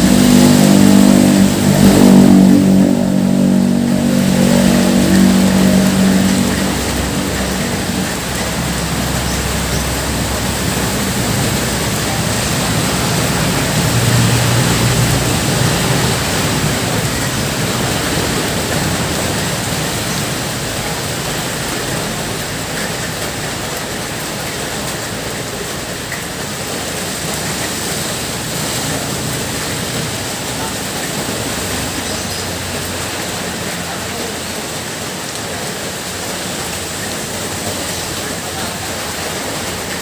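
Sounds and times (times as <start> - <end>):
heavy rain pouring: 0.0 - 40.0
vehicle engine: 0.0 - 40.0.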